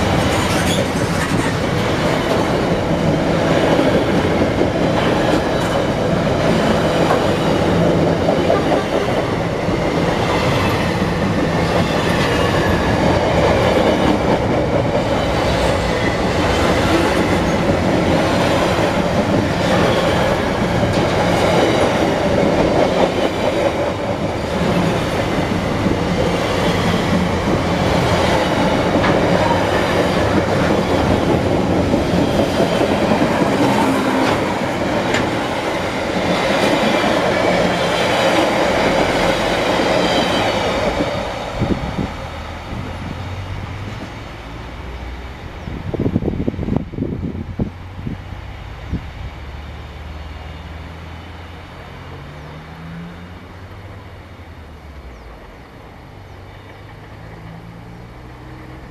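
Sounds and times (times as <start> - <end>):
steel wheels clattering on rails: 0.0 - 42.1.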